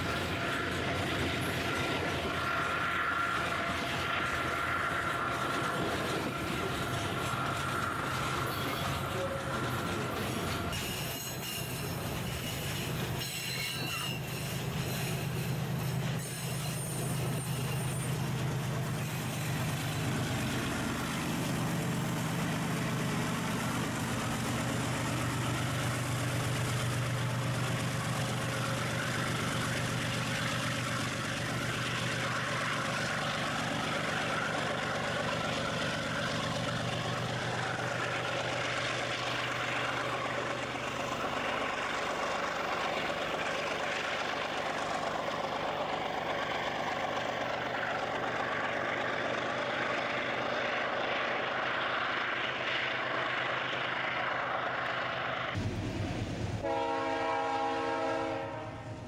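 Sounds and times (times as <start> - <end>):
high wheel squeals: 0.0 - 20.6
train wheels rolling: 0.0 - 56.8
locomotive engine drone: 0.0 - 59.0.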